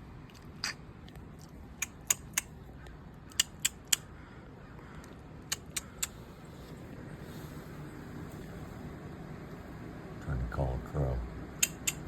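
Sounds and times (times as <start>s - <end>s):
sharp short clicks: 1.8s - 2.6s, 3.3s - 4.1s, 5.0s - 6.2s, 11.6s - 12.0s.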